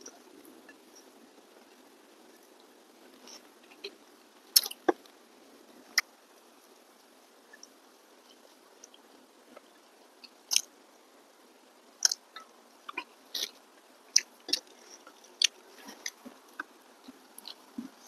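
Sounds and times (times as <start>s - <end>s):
person chewing food: 8.3s - 10.7s, 12.0s - 18.0s
wet mouth clicks and smacks: 10.5s - 10.7s.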